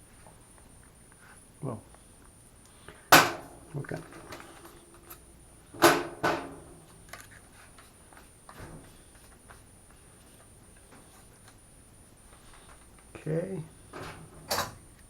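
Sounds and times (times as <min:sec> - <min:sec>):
hard metallic knocks: 0:05.8 - 0:06.7.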